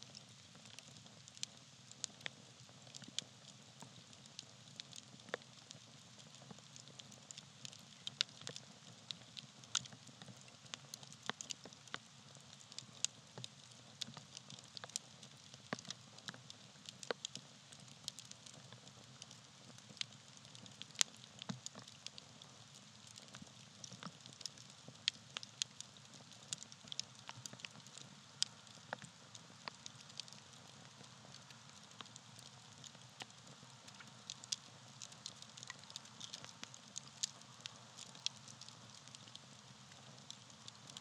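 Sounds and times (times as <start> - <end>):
soft hiss of burning: 0.0 - 41.0
campfire crackling: 0.1 - 18.6, 19.2 - 41.0
sharp pops and snaps: 23.0 - 39.4.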